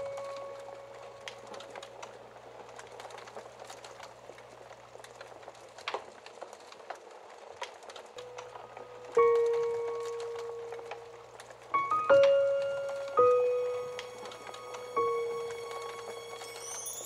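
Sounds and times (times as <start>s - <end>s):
fire pops: 0.0s - 17.0s
wood fire crackling: 0.0s - 17.0s
held musical note: 8.2s - 17.0s.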